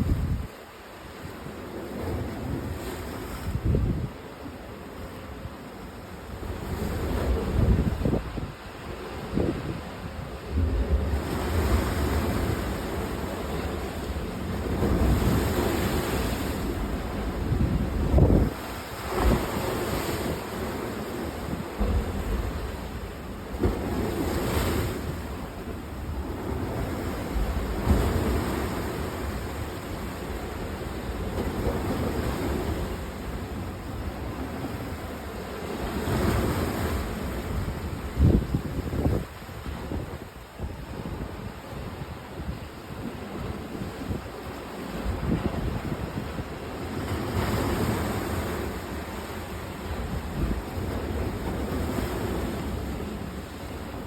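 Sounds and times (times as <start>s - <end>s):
waves washing: 0.0s - 54.0s
wind buffeting microphone: 6.6s - 20.5s, 36.0s - 48.4s.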